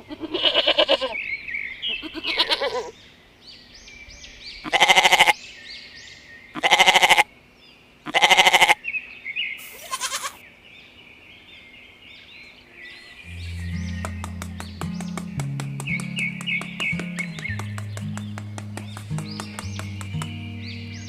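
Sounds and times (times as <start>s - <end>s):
sheep or goat bleating: 0.0s - 1.2s, 1.9s - 2.9s, 4.6s - 5.4s, 6.6s - 7.3s, 8.1s - 8.8s, 9.7s - 10.4s
birdsong chirping: 0.5s - 21.0s
music: 13.3s - 21.0s.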